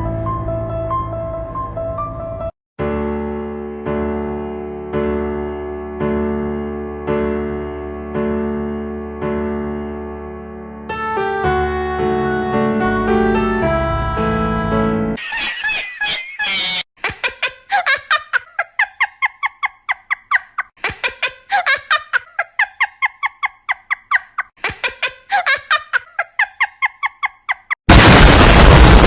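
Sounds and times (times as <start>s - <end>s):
loud burst of noise: 27.9s - 29.0s.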